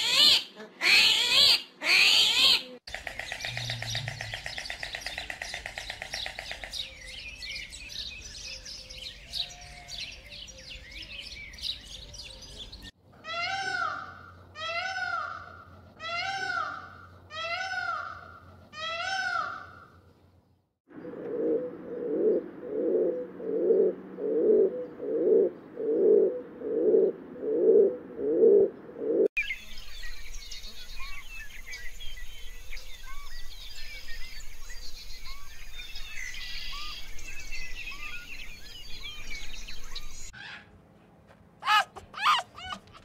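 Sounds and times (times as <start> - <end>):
small birds chirping: 2.9 - 13.0, 29.4 - 40.4
bird low cooing call: 3.2 - 5.4, 20.9 - 29.3
peafowl wailing calls: 13.3 - 19.9, 41.6 - 43.0.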